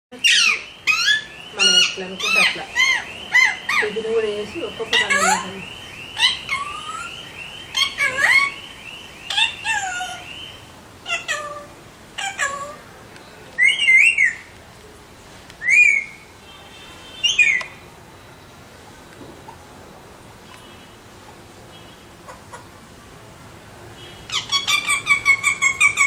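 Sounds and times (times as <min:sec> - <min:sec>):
harsh parakeet screeches: 0:00.2 - 0:03.9, 0:06.2 - 0:08.6, 0:09.3 - 0:10.4, 0:11.0 - 0:12.8, 0:24.3 - 0:26.0
parakeets whistling calls: 0:00.2 - 0:12.8, 0:13.6 - 0:14.4, 0:15.6 - 0:16.2, 0:17.1 - 0:17.8, 0:24.0 - 0:26.0.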